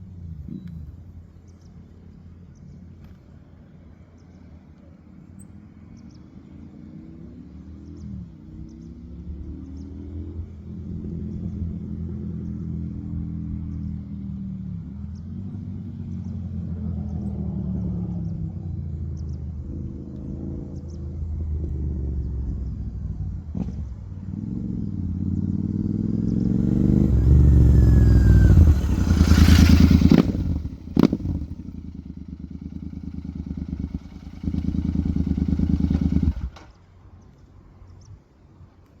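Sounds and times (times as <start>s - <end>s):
motorcycle engine idling and revving: 0.0s - 38.7s
exhaust crack: 26.6s - 36.8s.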